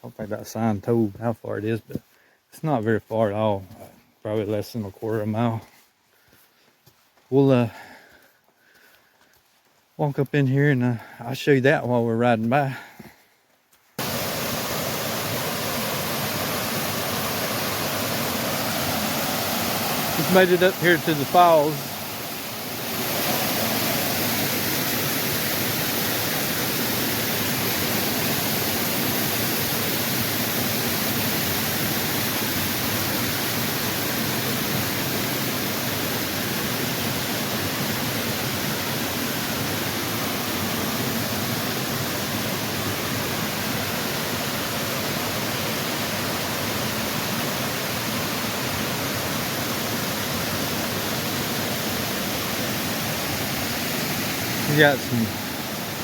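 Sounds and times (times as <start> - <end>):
waterfall roaring: 14.0 - 56.0.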